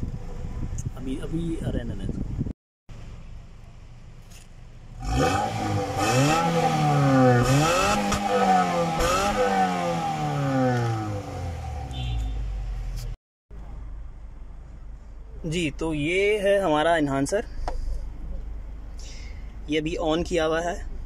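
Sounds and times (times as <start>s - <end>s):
car engine revving: 4.9s - 13.2s.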